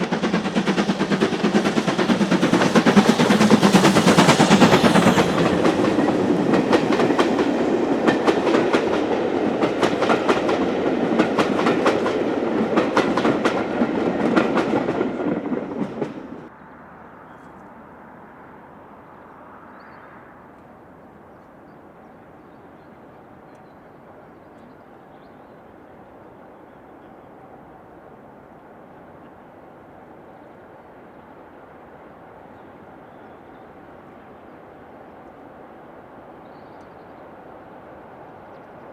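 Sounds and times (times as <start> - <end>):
wheels clicking over rail joints: 0.0 - 16.3
loud train rumble: 0.0 - 17.2.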